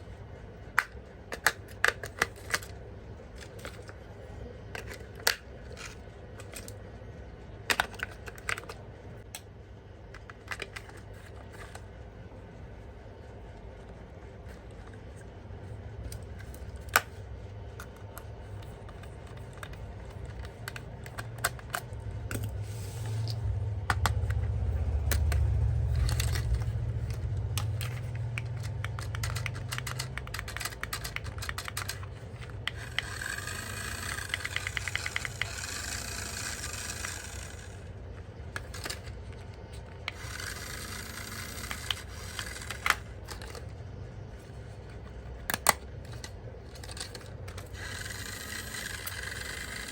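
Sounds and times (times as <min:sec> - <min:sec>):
plastic scraping and rubbing: 0:16.0 - 0:48.2
sharp plastic clicks: 0:23.8 - 0:37.9
rasping packaging: 0:24.1 - 0:37.8.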